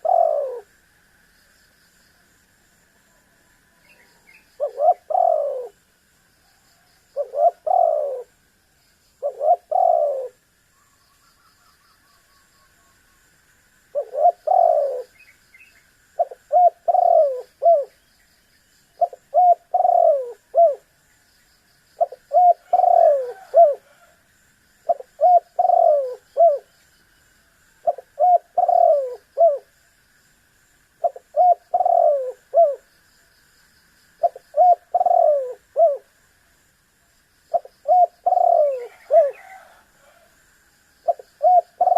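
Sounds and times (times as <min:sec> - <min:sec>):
dove cooing: 0:00.0 - 0:00.8, 0:04.0 - 0:05.8, 0:06.5 - 0:08.4, 0:09.2 - 0:10.4, 0:13.9 - 0:15.2, 0:16.2 - 0:18.0, 0:19.0 - 0:20.9, 0:22.0 - 0:24.2, 0:24.9 - 0:26.7, 0:27.8 - 0:29.7, 0:31.0 - 0:32.9, 0:34.2 - 0:36.1, 0:37.5 - 0:40.4, 0:41.0 - 0:41.9.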